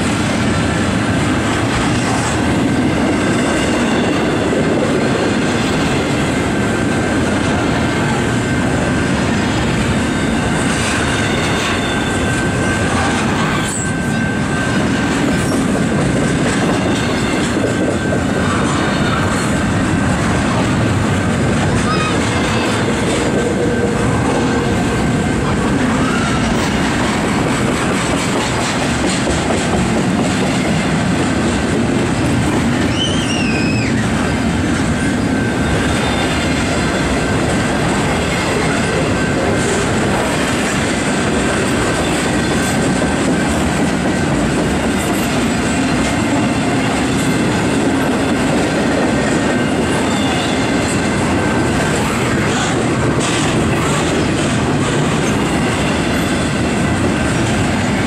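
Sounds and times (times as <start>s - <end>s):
train wheels rumbling on rail: 0.0s - 58.0s
wavering high squeal: 9.8s - 15.7s, 25.8s - 26.8s, 32.8s - 34.3s, 35.0s - 37.0s.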